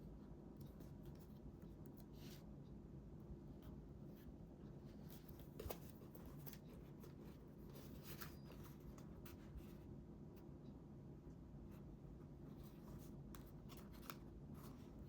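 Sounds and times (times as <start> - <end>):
paper rustling: 5.0 - 9.8, 12.5 - 15.0.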